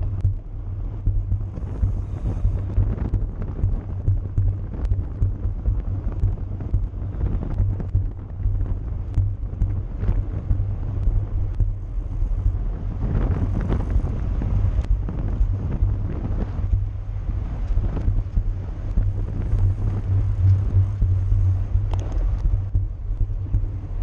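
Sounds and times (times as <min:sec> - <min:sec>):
wind buffeting microphone: 0:00.0 - 0:24.0
faint clicks: 0:17.4 - 0:23.8.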